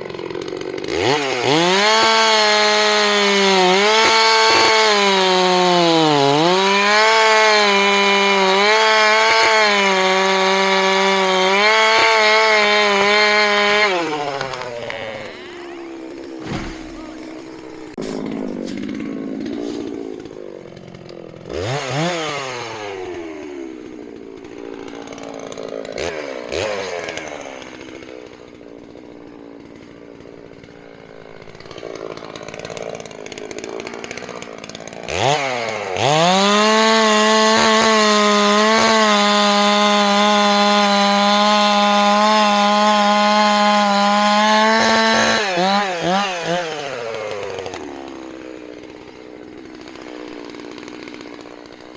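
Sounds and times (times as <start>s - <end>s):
chainsaw idling and revving: 0.0s - 51.9s.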